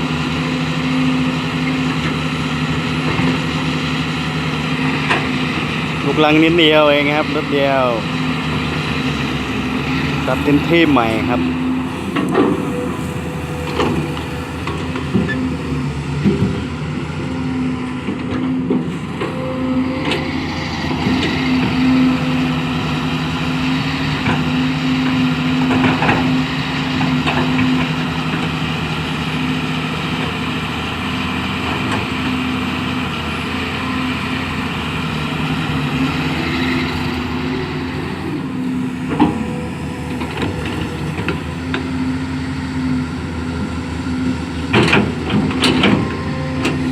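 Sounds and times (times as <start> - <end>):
excavator diesel engine: 0.0 - 46.9.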